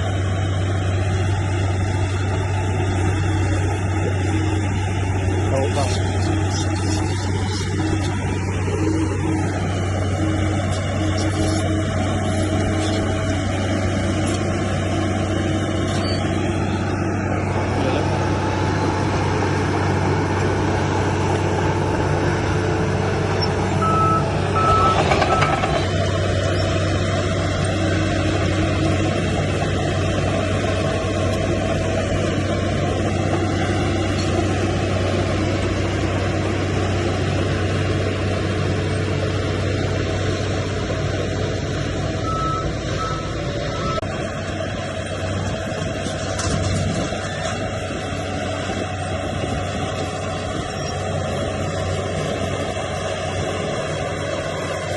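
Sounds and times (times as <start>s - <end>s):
diesel machinery engine hum: 0.0s - 54.9s
short reversing beeps: 23.8s - 25.6s, 42.2s - 44.0s.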